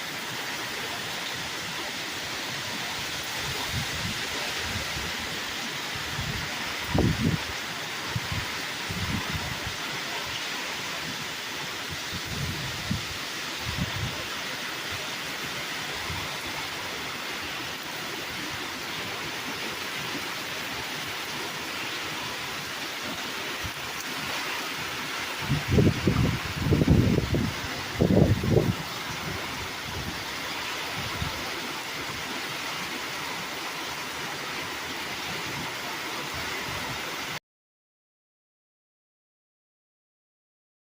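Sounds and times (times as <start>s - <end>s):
heavy rain falling: 0.0s - 37.4s
low wind rumble: 2.9s - 15.0s, 23.6s - 31.5s.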